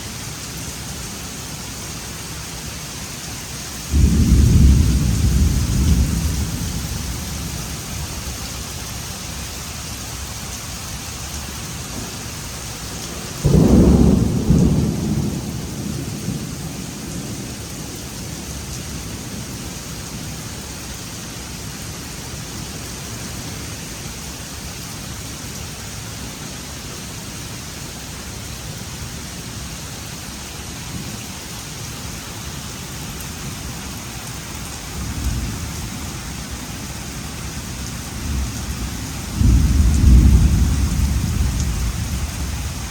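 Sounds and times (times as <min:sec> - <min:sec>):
steady rain: 0:00.0 - 0:42.9
roll of thunder: 0:03.9 - 0:07.6, 0:13.4 - 0:17.0, 0:38.2 - 0:42.9
thunderclap: 0:38.2 - 0:42.9.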